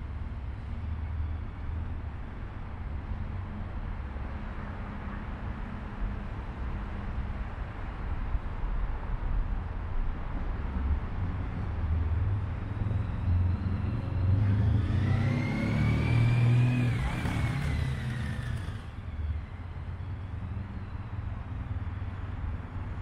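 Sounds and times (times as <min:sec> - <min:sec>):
engine whine: 0:12.6 - 0:22.3
motorcycle engine rumbling: 0:16.6 - 0:18.9.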